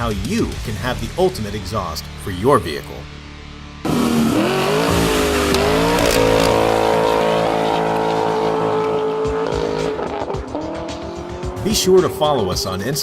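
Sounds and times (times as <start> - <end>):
car engine revving: 3.8 - 13.0.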